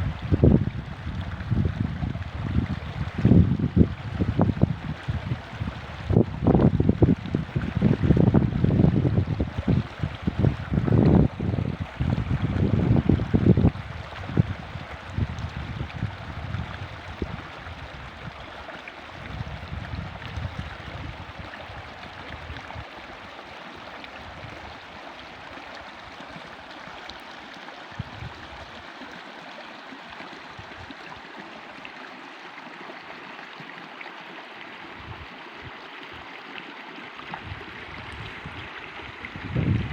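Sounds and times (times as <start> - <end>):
wind gusting on microphone: 0.0 - 18.4, 19.2 - 22.8, 27.9 - 28.7, 35.0 - 35.8, 37.3 - 39.9
stream rushing water: 0.0 - 39.9.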